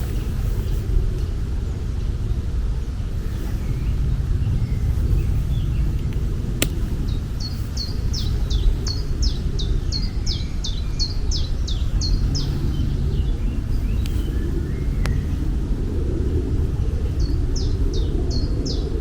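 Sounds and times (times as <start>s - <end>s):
low outdoor rumble: 0.0s - 19.0s
sharp click: 6.0s - 6.9s.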